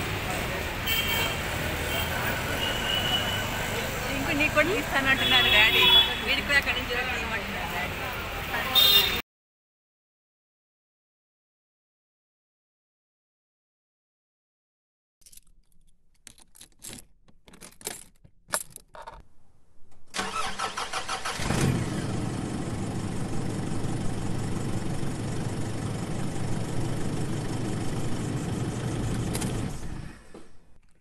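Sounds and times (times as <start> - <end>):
car engine cranking and starting: 20.1 - 30.2.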